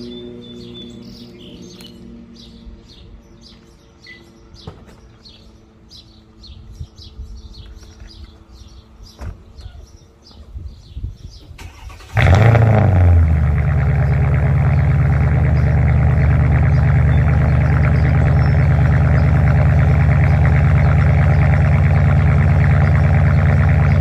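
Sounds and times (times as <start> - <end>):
birds chirping: 0.0 - 24.0
car engine cold start revving: 11.6 - 15.6.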